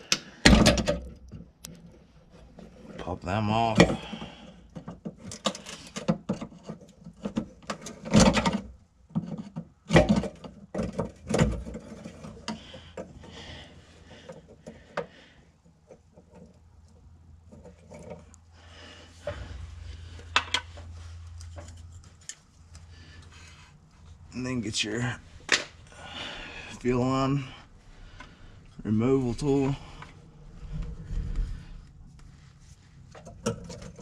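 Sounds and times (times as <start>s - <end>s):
low hum: 16.6s - 34.0s.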